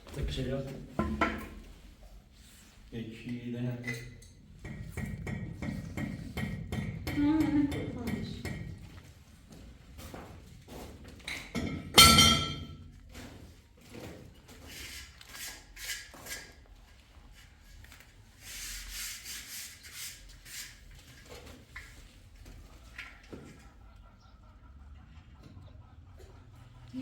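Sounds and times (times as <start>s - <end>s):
metallic clang: 11.6s - 12.7s
rasping strokes on hard surface: 14.7s - 16.6s, 18.4s - 20.9s.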